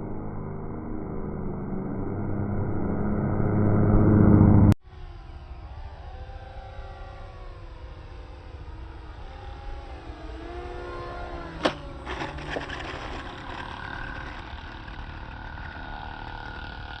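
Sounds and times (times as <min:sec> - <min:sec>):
electric motors whining: 0:05.4 - 0:17.0.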